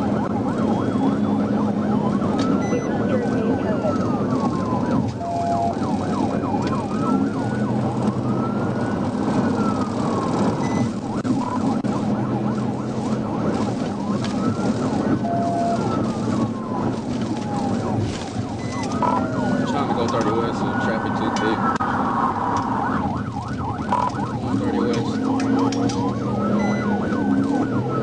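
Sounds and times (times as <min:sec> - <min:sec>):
police siren wailing: 0:00.0 - 0:28.0
road and engine noise: 0:00.0 - 0:28.0.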